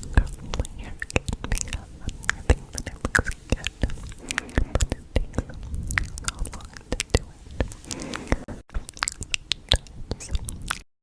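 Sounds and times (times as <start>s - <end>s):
breathy whispering: 0.0s - 9.3s
wet mouth clicks and smacks: 8.8s - 10.8s.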